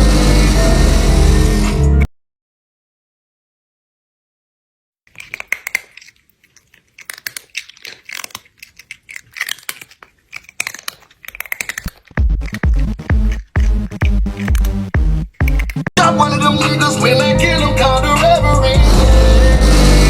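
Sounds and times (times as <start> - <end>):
crackling and crunching clicks: 5.1 - 16.0.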